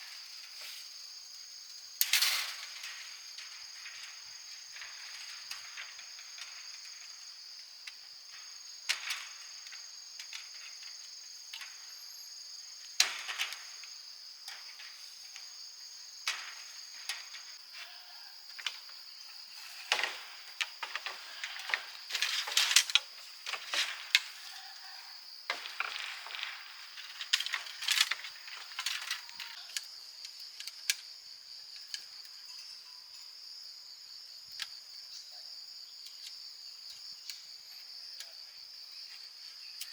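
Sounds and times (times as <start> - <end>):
crickets chirring: 0.0 - 39.9
high insect tone: 0.0 - 39.9
sharp knocks and clatters: 25.5 - 29.6.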